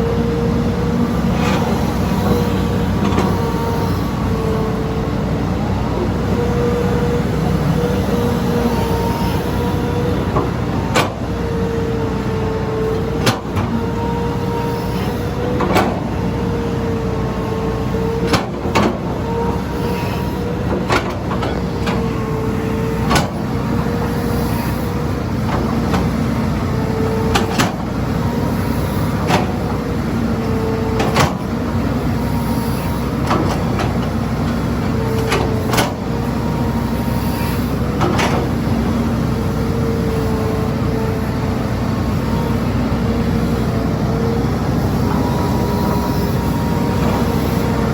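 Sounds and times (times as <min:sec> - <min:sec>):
excavator engine running: 0:00.0 - 0:47.9.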